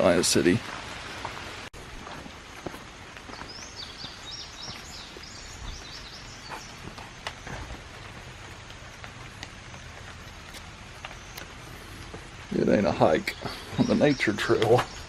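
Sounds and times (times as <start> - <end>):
light rain in woodland: 0.0 - 15.0
water drips: 0.0 - 15.0.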